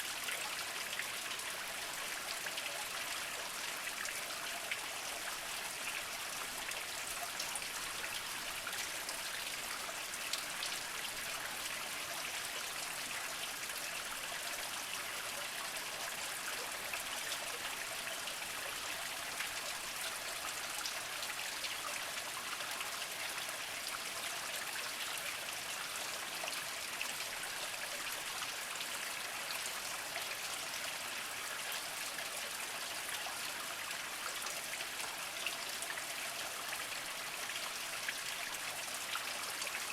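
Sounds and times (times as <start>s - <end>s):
spring water trickling and dripping: 0.0s - 39.9s.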